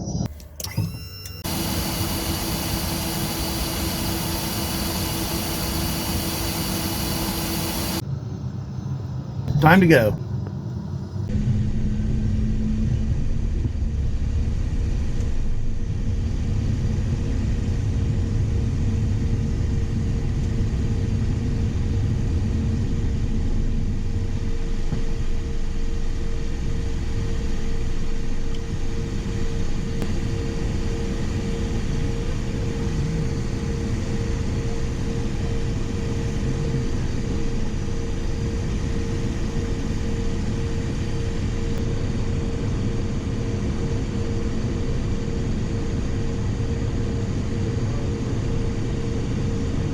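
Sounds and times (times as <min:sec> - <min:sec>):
jet engines running: 0:00.0 - 0:08.1, 0:16.2 - 0:42.1.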